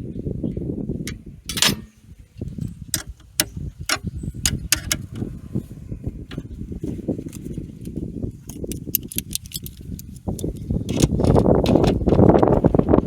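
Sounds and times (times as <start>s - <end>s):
ringing metal knock: 1.1s - 2.1s
metallic clinks of hand tools: 1.5s - 2.1s.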